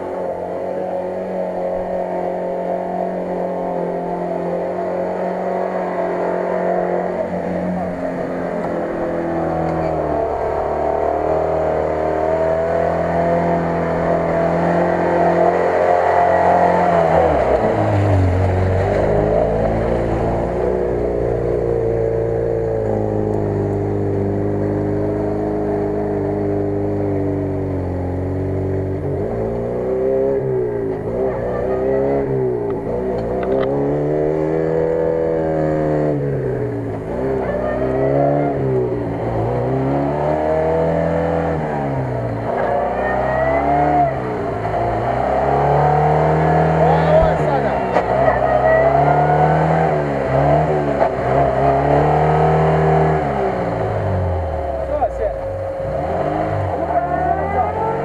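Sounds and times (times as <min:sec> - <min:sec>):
off-road car engine revving: 0:00.0 - 0:58.0
wheels spinning in mud and water: 0:17.1 - 0:22.0.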